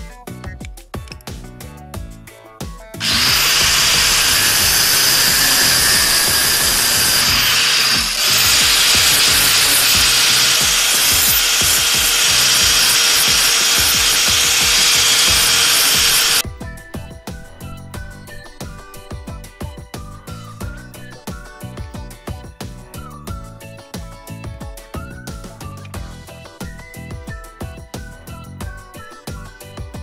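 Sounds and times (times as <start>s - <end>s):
wood grinding on abrasive disc: 3.0s - 16.4s.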